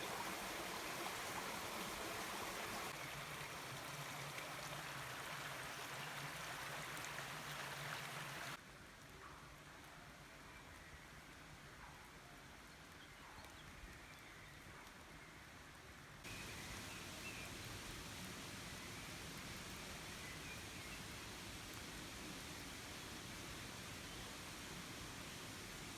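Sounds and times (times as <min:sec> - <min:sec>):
river water rushing: 0:00.0 - 0:08.6.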